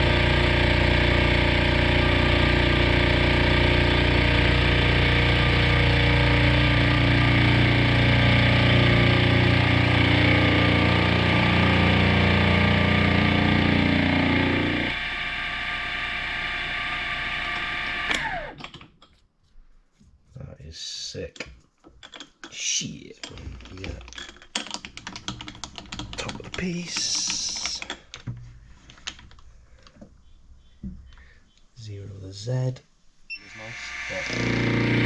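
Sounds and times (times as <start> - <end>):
machine winding down whine: 0.0 - 18.6, 33.3 - 35.0
milling machine cutting metal: 0.0 - 18.6, 33.3 - 35.0.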